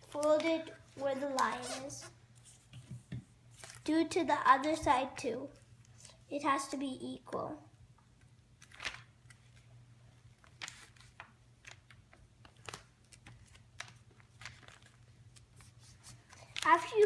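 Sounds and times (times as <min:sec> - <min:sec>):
paper rustling and crinkling: 0:00.0 - 0:03.9, 0:08.6 - 0:09.7, 0:10.3 - 0:17.0.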